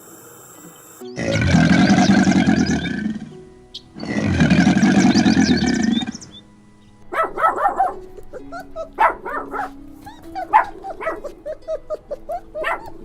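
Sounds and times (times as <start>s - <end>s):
loud animal roar: 1.2s - 3.4s, 4.0s - 6.4s
dog barking and yipping: 7.1s - 13.0s.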